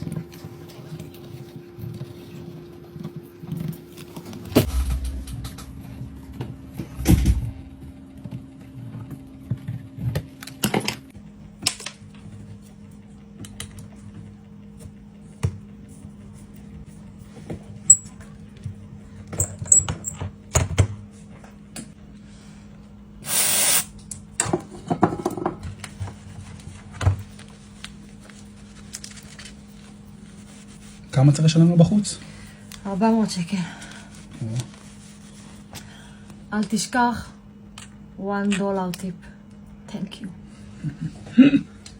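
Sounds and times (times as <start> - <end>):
steady low hum: 0.0 - 41.9
short hiss: 23.3 - 23.9.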